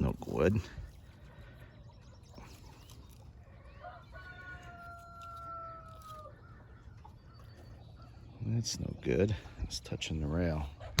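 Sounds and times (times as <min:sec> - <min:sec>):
rooster crowing: 0:03.7 - 0:06.3.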